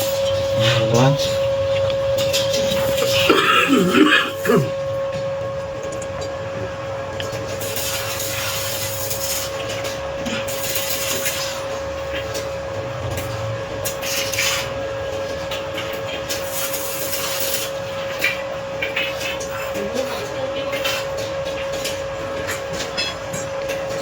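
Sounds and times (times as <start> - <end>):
steady high hum: 0.0 - 10.6.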